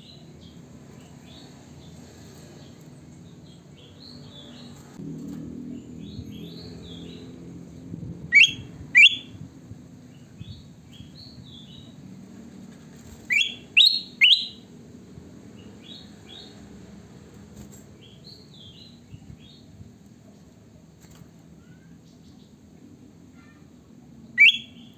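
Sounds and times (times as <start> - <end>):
loud sharp bird notes: 8.3 - 9.4, 13.3 - 14.7, 24.4 - 24.9
bulbul singing warbled phrases: 13.3 - 14.6, 24.3 - 24.9.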